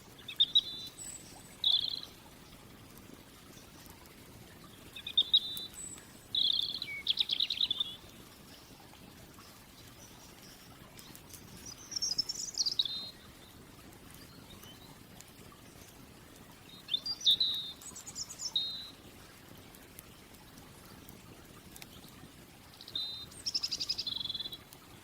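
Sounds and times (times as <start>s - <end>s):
songbird chirping: 0.2s - 2.2s, 5.0s - 8.1s, 9.4s - 13.6s, 16.6s - 19.0s, 22.7s - 24.6s.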